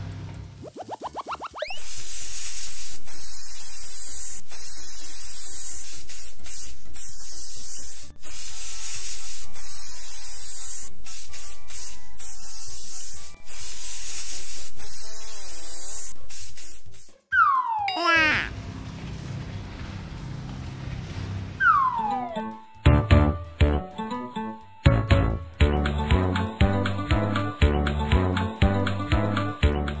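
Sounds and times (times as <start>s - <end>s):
paint spraying hiss: 0.7s - 17.2s.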